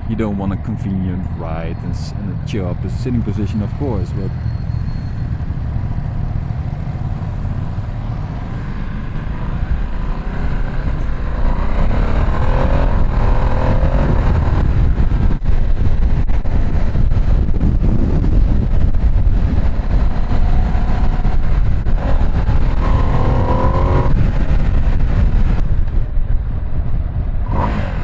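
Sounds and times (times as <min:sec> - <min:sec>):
motorcycle engine accelerating: 0:04.4 - 0:25.7, 0:27.4 - 0:28.0
wind rush over microphone: 0:05.2 - 0:28.0.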